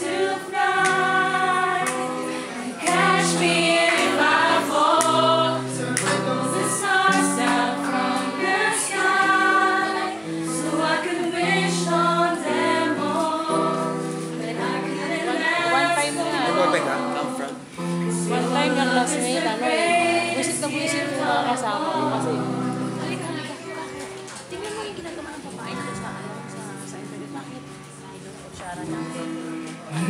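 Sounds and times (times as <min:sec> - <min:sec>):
choir singing in harmony: 0:00.0 - 0:23.3.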